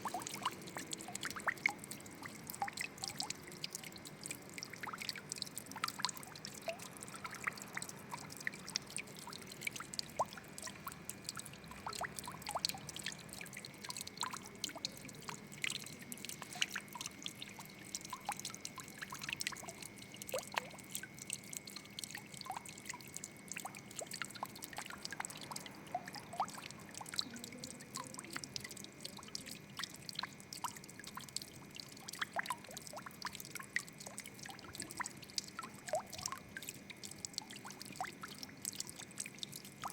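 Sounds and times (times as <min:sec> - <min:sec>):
water trickling and dripping: 0:00.0 - 0:39.9.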